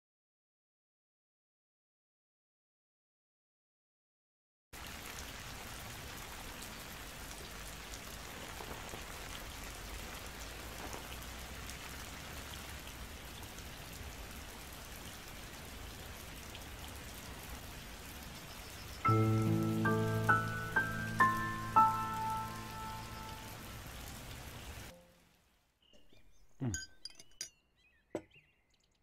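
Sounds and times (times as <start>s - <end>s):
steady rain hissing: 4.8s - 25.8s.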